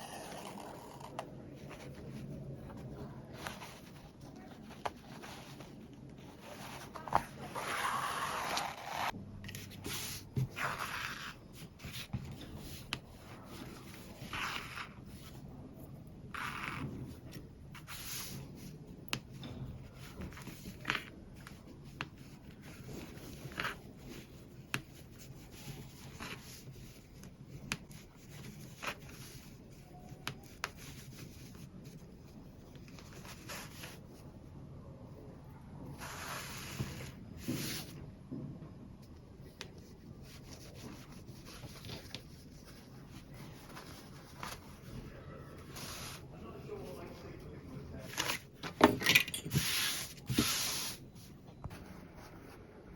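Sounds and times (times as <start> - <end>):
cloth rustling and rubbing: 39.8 - 47.2, 49.5 - 51.9.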